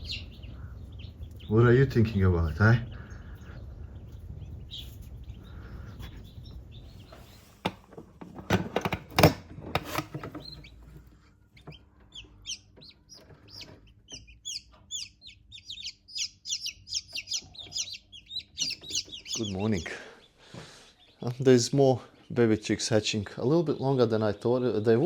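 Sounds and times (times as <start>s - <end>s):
baby chicks peeping: 0.0s - 25.0s
chickens clucking: 10.4s - 25.0s.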